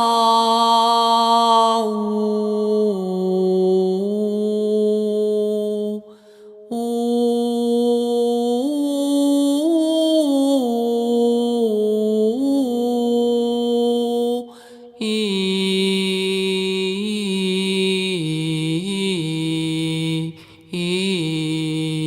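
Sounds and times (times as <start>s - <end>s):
short breath: 6.1s - 6.7s, 14.5s - 15.0s, 20.4s - 20.7s.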